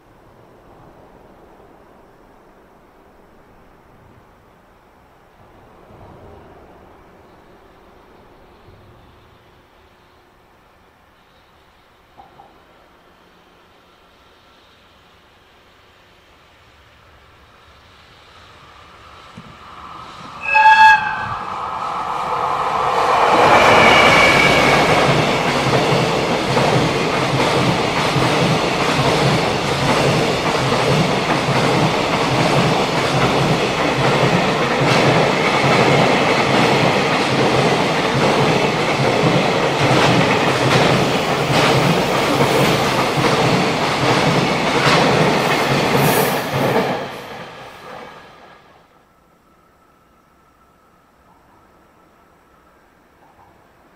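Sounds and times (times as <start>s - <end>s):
freight train wheels rolling on rails: 0.0s - 53.9s
train horn blast: 20.3s - 25.3s.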